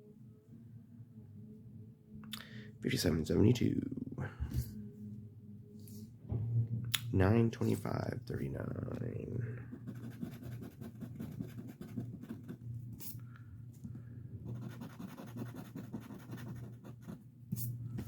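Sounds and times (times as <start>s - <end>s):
scratching lottery ticket: 9.7s - 13.2s, 14.5s - 17.7s.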